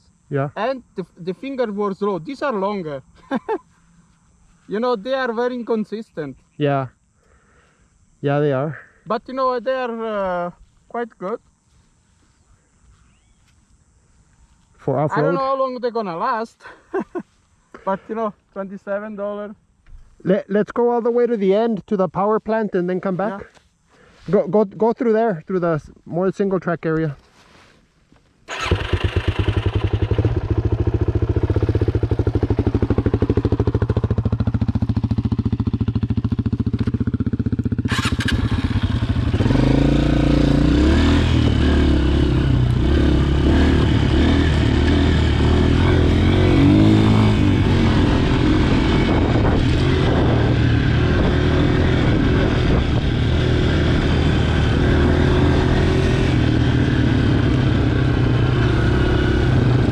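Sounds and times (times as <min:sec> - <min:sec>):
dirt bike engine idling: 0:00.1 - 0:05.7, 0:28.5 - 0:55.4
dirt bike riding off: 0:28.5 - 0:59.9.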